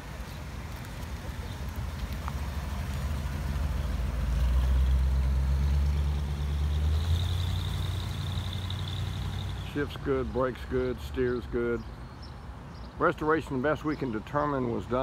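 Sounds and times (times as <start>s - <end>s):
car engine driving past: 2.2s - 10.4s.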